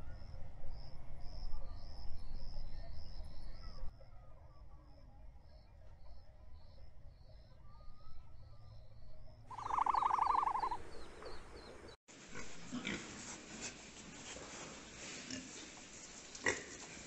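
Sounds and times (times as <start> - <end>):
small birds chirping: 5.5 - 12.0
loud rapid bird trill: 9.5 - 11.8
pigs grunting and snuffling: 12.2 - 17.0.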